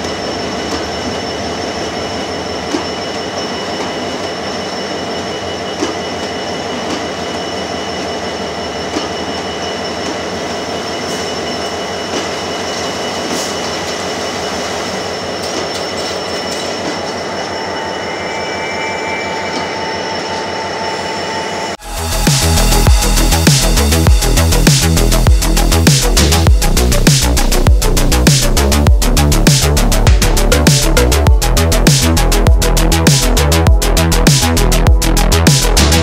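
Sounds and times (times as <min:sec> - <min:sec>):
thin steady squeal: 0:00.0 - 0:27.1
electronic music with heavy beat: 0:21.8 - 0:36.0.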